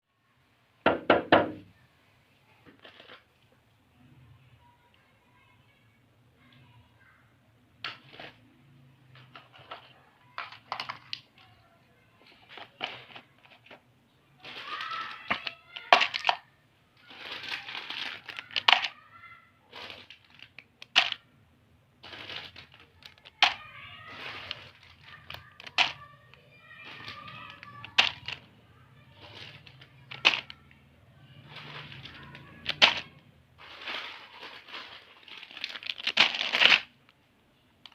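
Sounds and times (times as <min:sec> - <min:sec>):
plastic snack packets crinkling: 0:02.6 - 0:03.5, 0:07.8 - 0:13.8, 0:14.4 - 0:21.3, 0:22.0 - 0:37.2.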